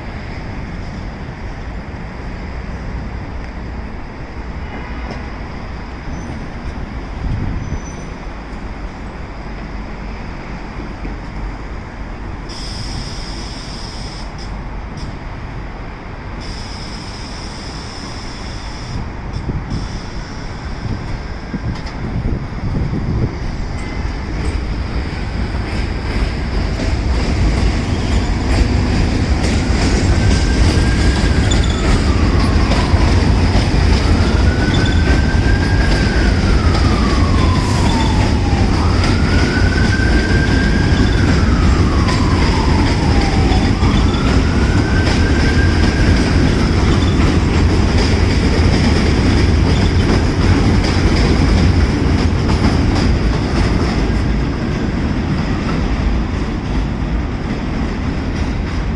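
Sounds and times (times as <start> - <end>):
subway train wheels rattling: 0.0 - 58.9
siren wailing: 29.8 - 47.2.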